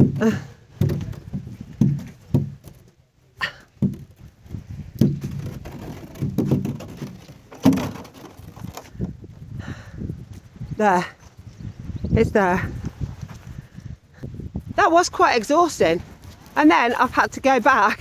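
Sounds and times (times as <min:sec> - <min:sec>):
plastic box thumping on steps: 0:00.0 - 0:02.9, 0:03.8 - 0:04.3, 0:05.0 - 0:09.1
plastic box scraping: 0:03.8 - 0:09.2, 0:15.8 - 0:18.0.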